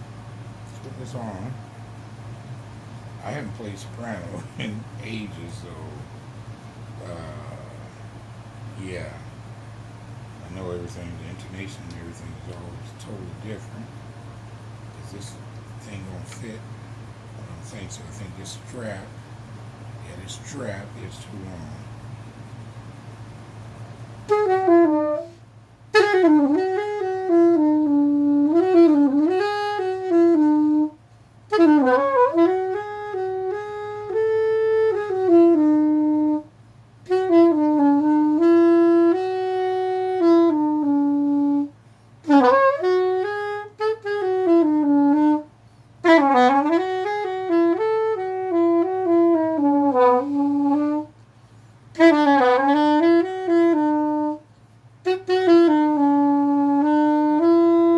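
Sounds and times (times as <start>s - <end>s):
soprano saxophone melody: 0.7s - 1.6s, 23.2s - 57.9s.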